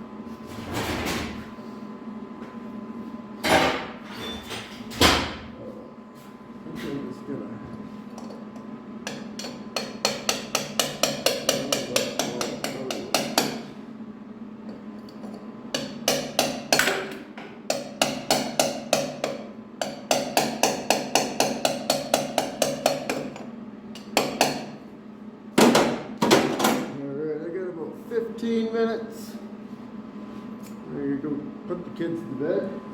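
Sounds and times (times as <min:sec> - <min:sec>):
hammer tapping on metal: 0:09.1 - 0:13.6, 0:15.2 - 0:24.7.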